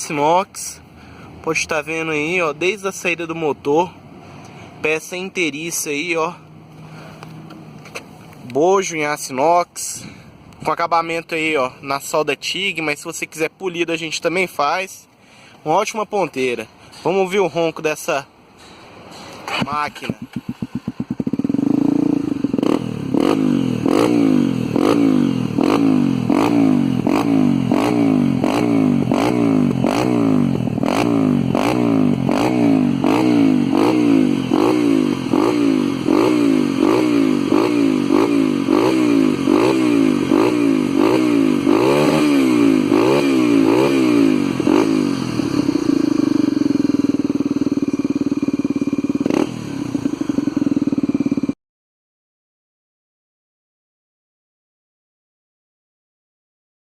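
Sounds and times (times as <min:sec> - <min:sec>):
motorcycle engine revving: 0:18.6 - 0:51.6.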